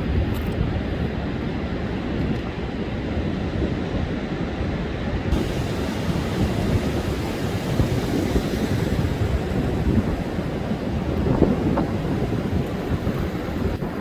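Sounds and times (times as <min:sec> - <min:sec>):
wind rumbling on microphone: 0:00.0 - 0:14.0
surf breaking on beach: 0:05.1 - 0:14.0.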